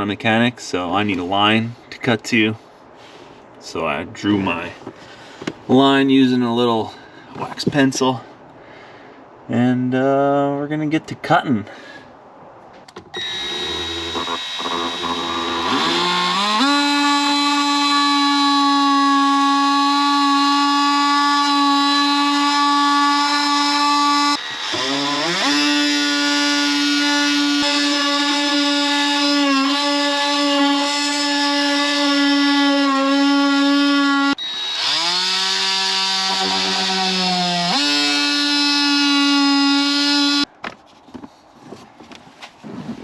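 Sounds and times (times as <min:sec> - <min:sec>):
power tool cutting plastic: 0:13.2 - 0:40.5.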